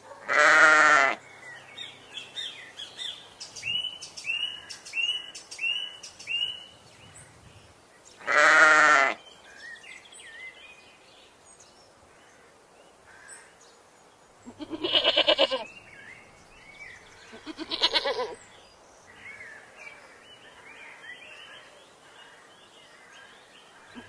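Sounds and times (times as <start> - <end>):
goat bleating: 0.3 - 1.2, 8.3 - 9.2, 14.5 - 15.7, 17.3 - 18.4.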